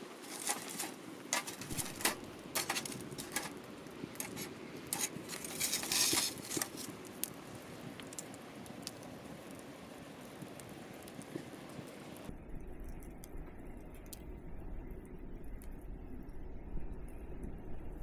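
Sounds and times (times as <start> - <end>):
fire hissing flare: 0.0 - 12.3
wood fire crackling: 0.0 - 16.4.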